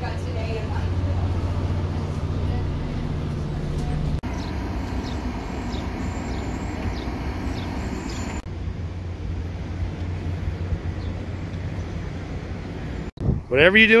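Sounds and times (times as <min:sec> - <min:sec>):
train rumble and hum: 0:00.0 - 0:13.1.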